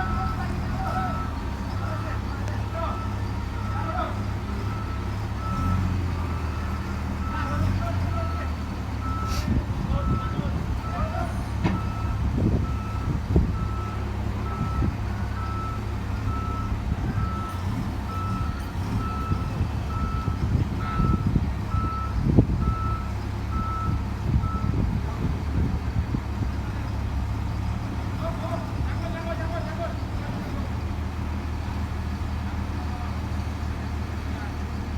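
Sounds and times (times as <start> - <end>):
diesel engine rumble: 0.0 - 34.9
reverse alarm beeping: 10.0 - 24.8.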